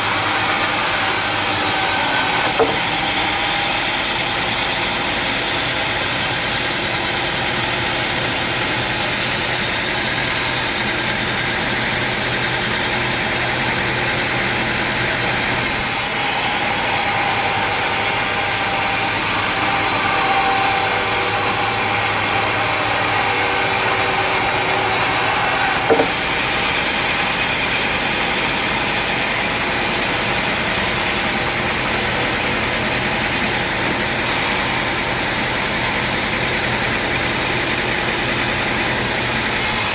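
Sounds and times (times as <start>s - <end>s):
saw whining through wood: 0.0s - 39.9s
sawmill machinery running: 0.0s - 39.9s
sharp knock: 2.4s - 3.0s, 25.8s - 26.2s.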